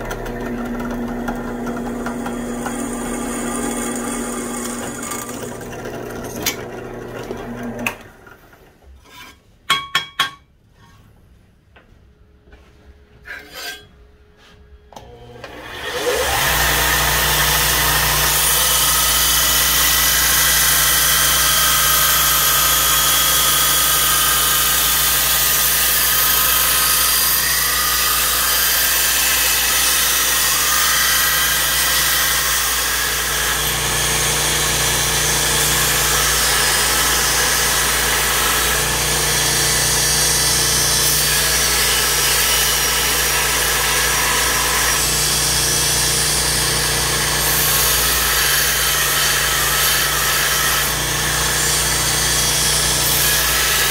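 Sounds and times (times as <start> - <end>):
belt grinder motor: 0.0 - 8.3, 15.0 - 53.9
knife grinding on belt: 13.3 - 13.9.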